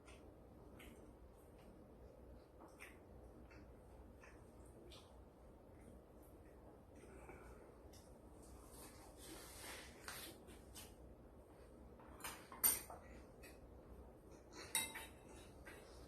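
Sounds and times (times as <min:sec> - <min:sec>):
dishes and utensils clinking: 0:12.0 - 0:13.6, 0:14.4 - 0:16.0.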